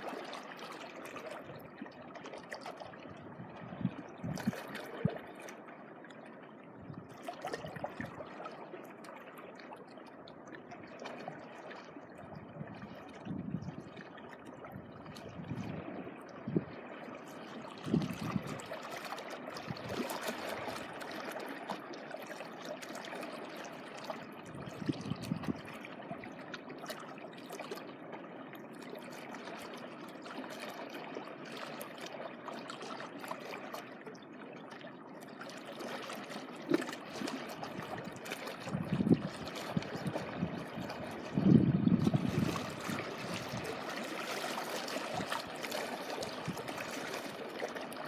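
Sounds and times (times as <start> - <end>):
seawater washing along shore: 35.5 - 48.0.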